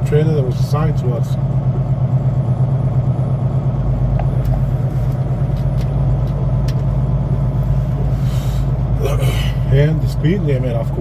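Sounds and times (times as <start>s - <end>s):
diesel truck engine humming: 0.0s - 11.0s.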